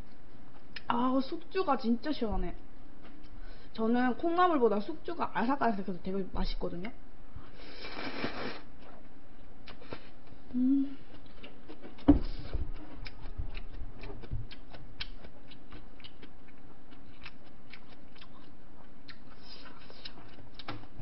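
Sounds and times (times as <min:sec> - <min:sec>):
chewing noodles: 0:07.8 - 0:20.7.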